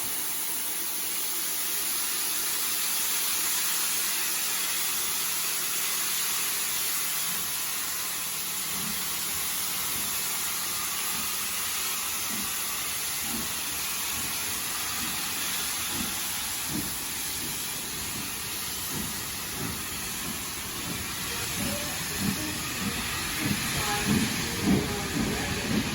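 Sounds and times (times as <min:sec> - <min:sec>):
steam hissing: 0:00.0 - 0:25.9
locomotive exhaust chuffs: 0:07.9 - 0:25.9.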